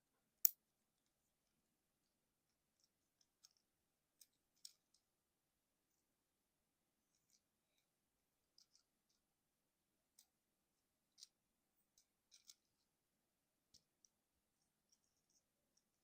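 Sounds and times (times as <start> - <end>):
plastic toy parts clicking: 11.1 - 12.8.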